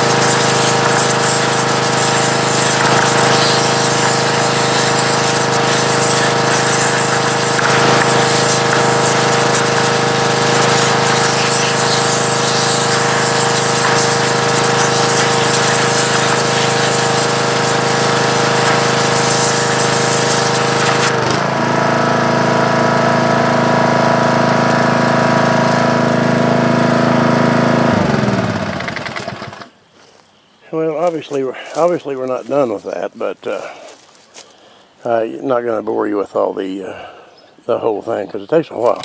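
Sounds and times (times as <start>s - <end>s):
water jet hissing: 0.0s - 21.2s
pressure washer pump hum: 0.0s - 29.7s, 38.5s - 39.0s.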